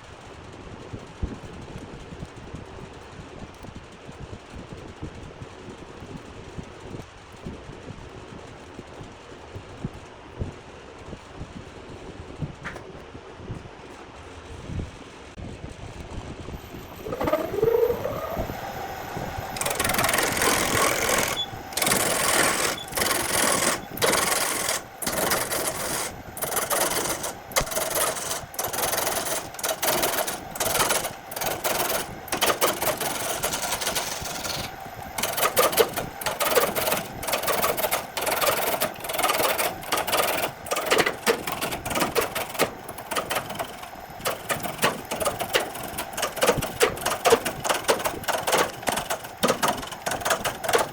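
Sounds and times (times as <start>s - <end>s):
power tool motor whining: 16.6s - 50.9s
power tool cutting wood: 16.7s - 36.8s.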